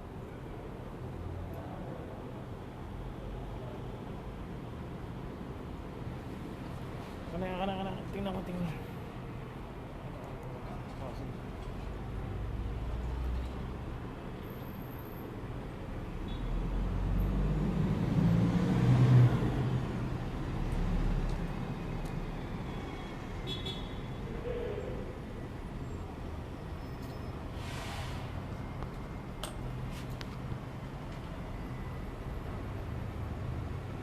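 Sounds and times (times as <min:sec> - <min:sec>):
passing vehicle rumble: 0:16.6 - 0:23.4.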